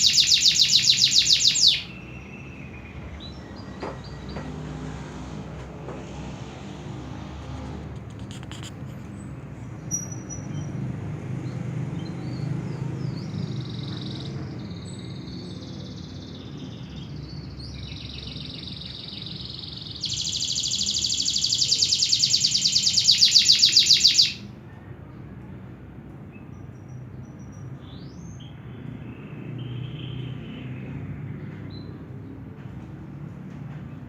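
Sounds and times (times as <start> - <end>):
canary singing: 0.0 - 4.4, 12.1 - 24.6.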